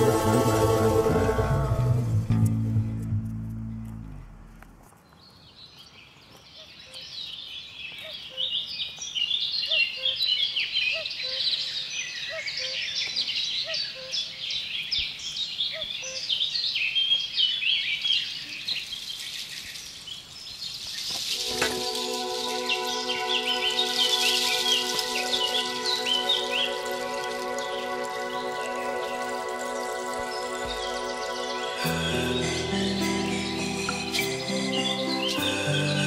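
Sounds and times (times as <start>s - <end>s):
guitar music: 0.0s - 4.6s, 21.4s - 36.0s
birds chirping and singing: 5.0s - 36.0s.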